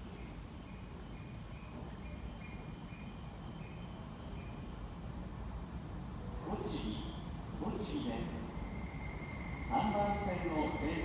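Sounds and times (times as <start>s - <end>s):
train rumbling into platform: 0.0s - 11.0s.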